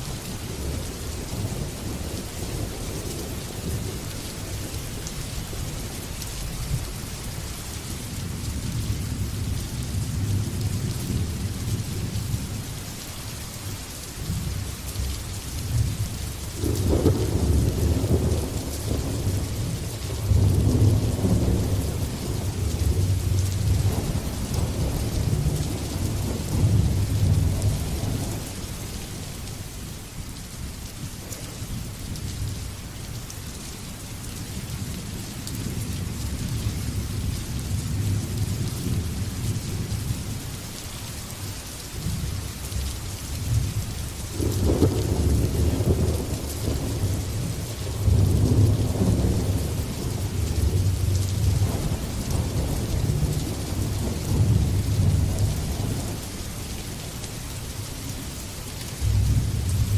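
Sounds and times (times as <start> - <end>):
steady rain: 0.0 - 59.9
rolling thunder: 15.7 - 28.6, 44.4 - 56.3, 59.0 - 59.9.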